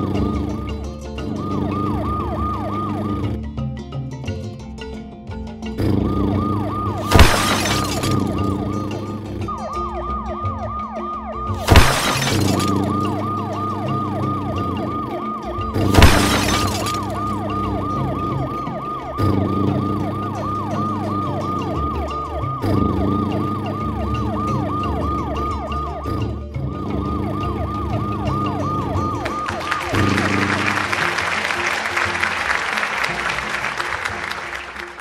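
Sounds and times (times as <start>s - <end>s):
cartoon siren wail: 0.0s - 3.4s, 5.8s - 31.4s
background music: 0.0s - 35.0s
loud short crashes: 7.1s - 8.2s, 11.6s - 12.8s, 15.9s - 17.1s.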